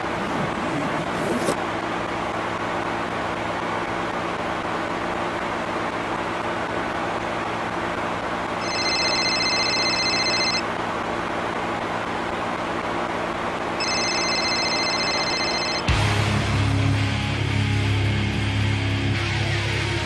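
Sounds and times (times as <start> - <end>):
high electronic ringing tone: 8.6 - 10.7, 13.8 - 15.9.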